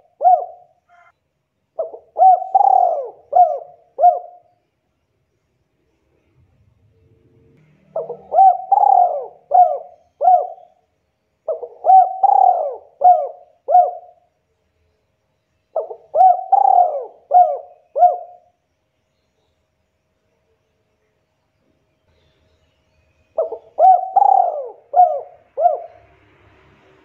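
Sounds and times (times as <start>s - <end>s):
dove cooing: 0.0s - 1.1s, 1.8s - 4.5s, 7.9s - 10.8s, 11.5s - 14.2s, 15.8s - 18.5s, 23.4s - 26.1s.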